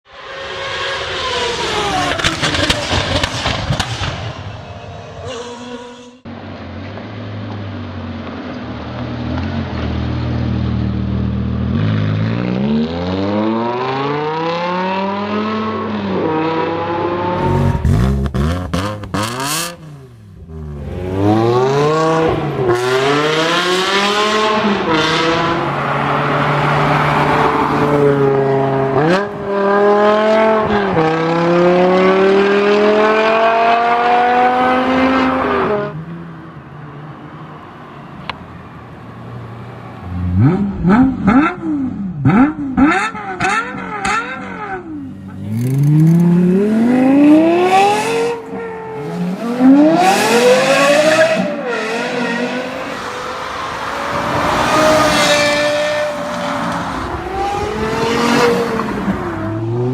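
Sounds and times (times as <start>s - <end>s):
sharp cracks: 2.0s - 4.6s
sports car engine accelerating: 6.8s - 36.2s, 38.2s - 59.9s.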